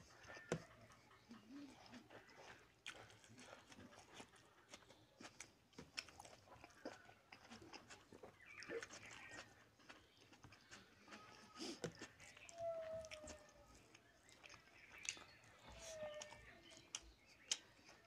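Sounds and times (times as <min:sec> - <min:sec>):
chewing with wet mouth smacks: 0:00.0 - 0:18.0.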